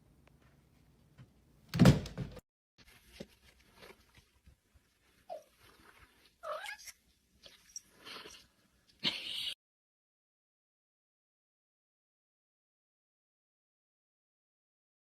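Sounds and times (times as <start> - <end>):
loud thump: 1.7 - 2.4.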